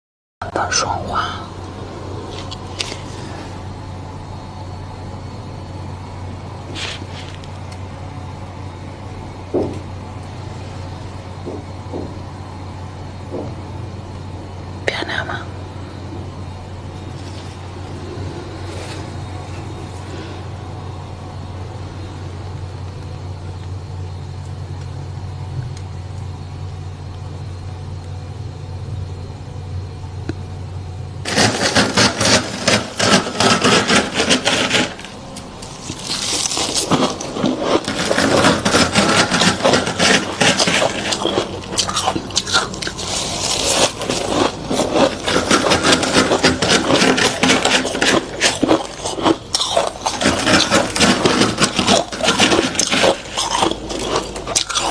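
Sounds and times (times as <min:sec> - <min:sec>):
steady low hum: 0:00.4 - 0:54.9
scraping of freezer frost: 0:02.2 - 0:04.0, 0:06.7 - 0:07.7, 0:17.0 - 0:20.6, 0:31.2 - 0:54.9.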